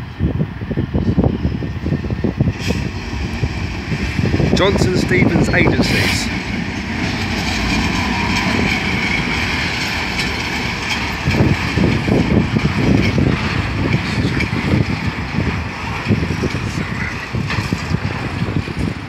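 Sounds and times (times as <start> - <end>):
diesel locomotive engine passing: 0.0 - 19.0
train wheels rumbling and clattering: 0.0 - 19.0.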